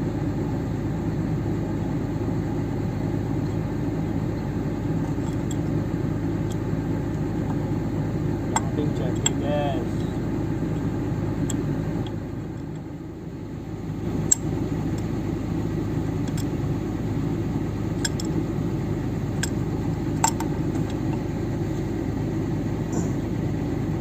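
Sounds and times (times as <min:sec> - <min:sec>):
diesel engine idling: 0:00.0 - 0:24.0
sharp clicks: 0:18.0 - 0:18.4.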